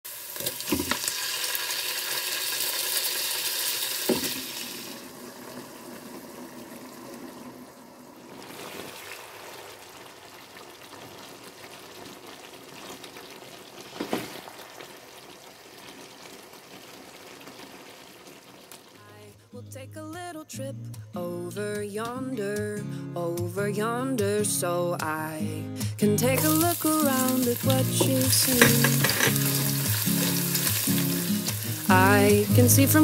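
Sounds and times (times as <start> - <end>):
chicken sizzling in hot oil: 0.1 - 19.2, 26.4 - 33.0
spatula stirring in wok: 26.4 - 31.9.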